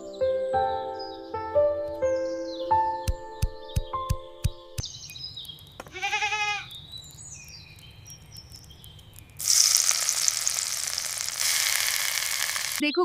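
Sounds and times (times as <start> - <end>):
small birds chirping: 0.0 - 13.0
goat bleating: 5.9 - 6.7
meat sizzling in hot oil: 9.4 - 12.8.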